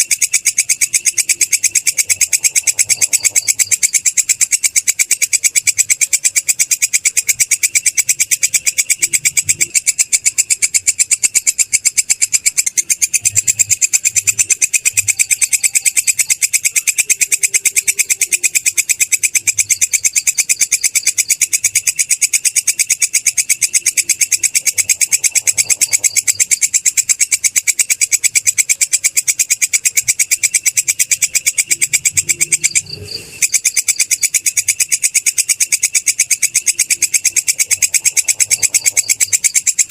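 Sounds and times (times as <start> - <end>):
insect shrill trill: 0.0 - 39.9.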